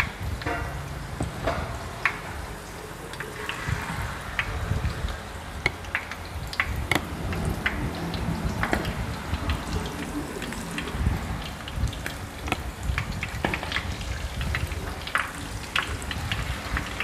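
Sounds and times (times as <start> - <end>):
seafood deep-frying in oil: 0.0 - 17.0
sharp oil pops and crackles: 5.5 - 17.0.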